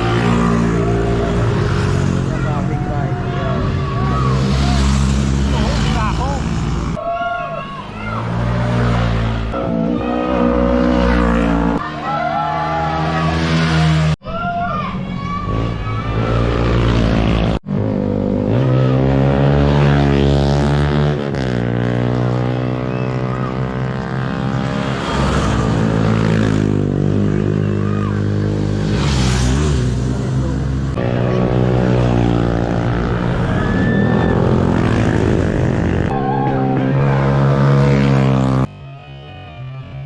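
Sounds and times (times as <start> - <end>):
motorcycle engine running: 20.6 - 38.7.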